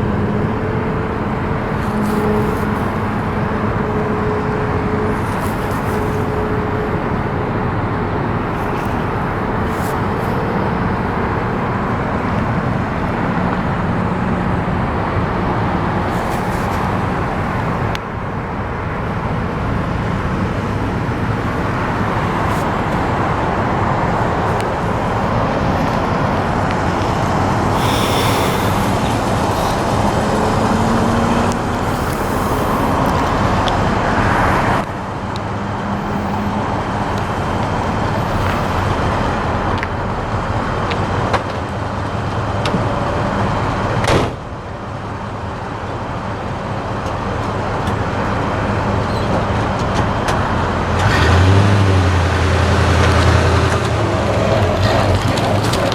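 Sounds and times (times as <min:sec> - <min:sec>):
pickup truck engine running: 0:00.0 - 0:40.8
road noise: 0:00.0 - 0:55.9.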